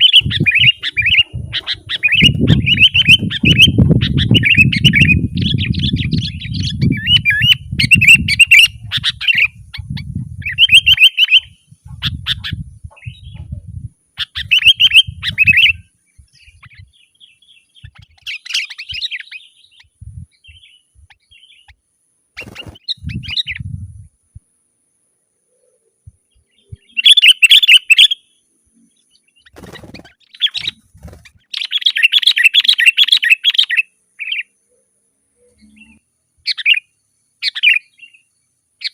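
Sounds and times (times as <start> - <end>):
bird singing bubbling chirps: 0.0 - 13.6, 14.2 - 21.8, 26.2 - 28.2, 29.0 - 34.7.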